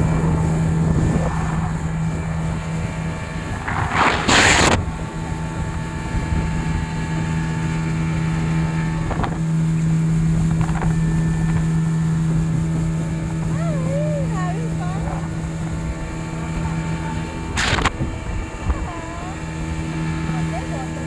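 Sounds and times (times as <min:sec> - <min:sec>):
motorboat engine running: 0:00.0 - 0:21.0
water and wind rushing: 0:00.0 - 0:21.0.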